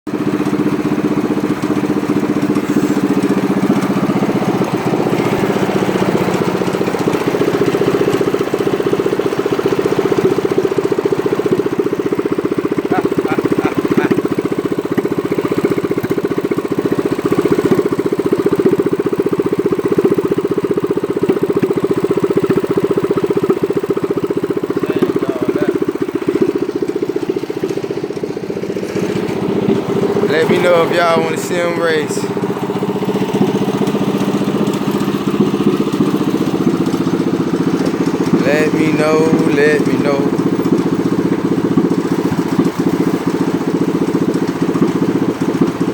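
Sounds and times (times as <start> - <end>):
small engine running: 0.1 - 45.9.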